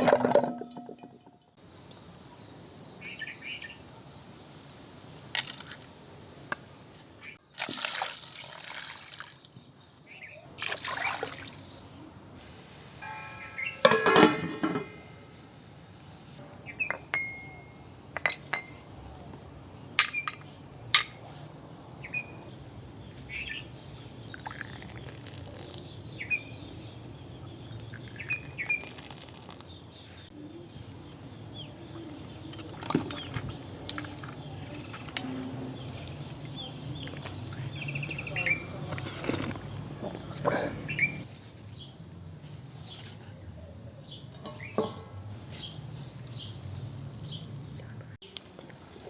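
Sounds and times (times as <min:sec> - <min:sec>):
low steady background noise: 0:00.0 - 0:49.0
small birds chirping: 0:13.0 - 0:14.0, 0:16.5 - 0:42.0
dishes and utensils clinking: 0:13.0 - 0:15.6, 0:16.4 - 0:21.5.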